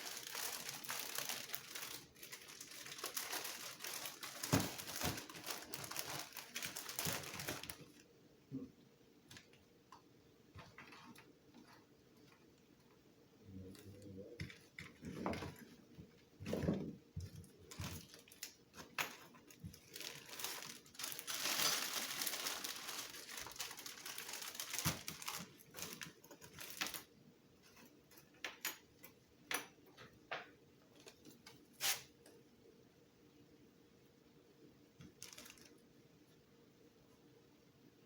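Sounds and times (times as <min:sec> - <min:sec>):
packaging rustling and crinkling: 0:00.0 - 0:08.0, 0:14.4 - 0:28.2, 0:35.0 - 0:35.8.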